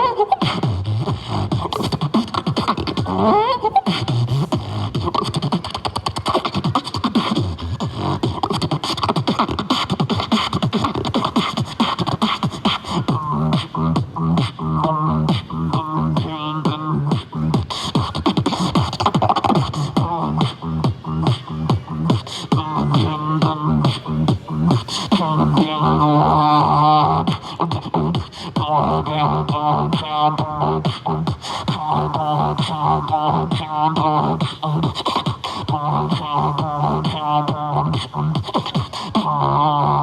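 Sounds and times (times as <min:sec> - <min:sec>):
warbling vocal effects: 0:00.0 - 0:27.9, 0:28.5 - 0:40.0
beatboxing: 0:00.0 - 0:40.0
humming bass: 0:00.0 - 0:40.0.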